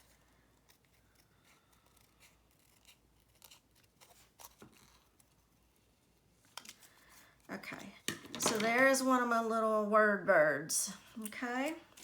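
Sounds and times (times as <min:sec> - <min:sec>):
scissors snipping paper: 0:00.7 - 0:05.4.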